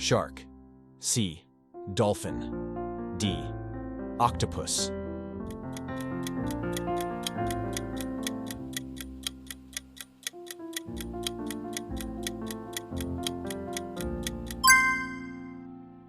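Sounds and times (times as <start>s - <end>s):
soft background music: 0.0s - 16.0s
countdown timer ticking: 5.4s - 15.5s
bright ringing chime: 14.6s - 15.6s.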